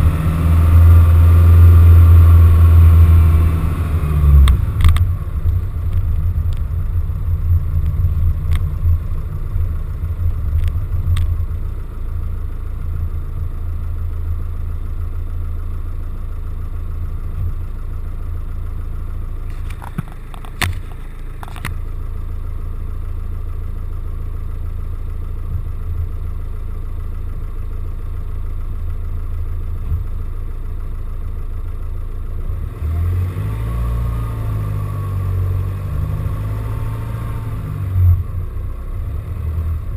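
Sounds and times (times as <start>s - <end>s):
van engine rumbling: 0.0s - 39.9s.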